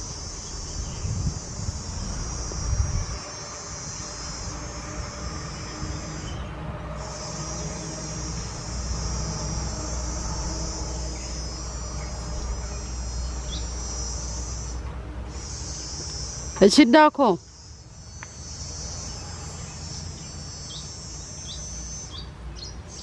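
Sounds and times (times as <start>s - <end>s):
low steady rumble: 0.0s - 15.4s
high-pitched insect trill: 0.0s - 23.0s.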